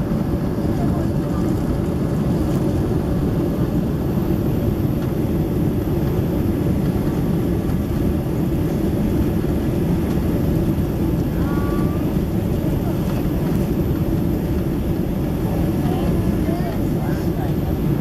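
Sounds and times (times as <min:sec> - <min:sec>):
airliner cabin drone: 0:00.0 - 0:18.0.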